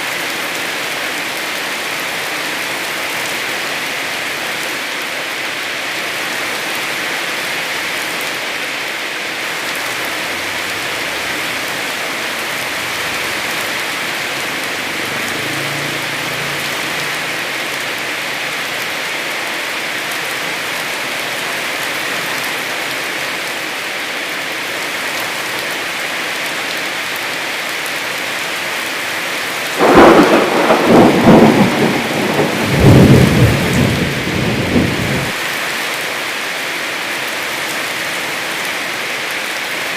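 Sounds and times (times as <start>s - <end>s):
heavy rain hissing: 0.4s - 39.9s
rolling thunder clap: 29.8s - 35.4s.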